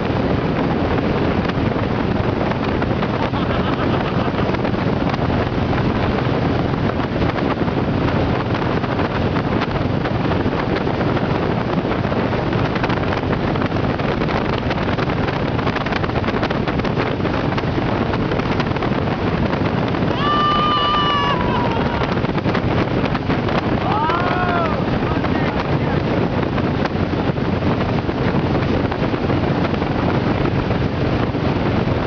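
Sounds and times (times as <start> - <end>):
motorboat engine: 0.0 - 32.0
wind noise on microphone: 0.0 - 32.0
water rushing: 1.3 - 13.0, 17.2 - 30.0.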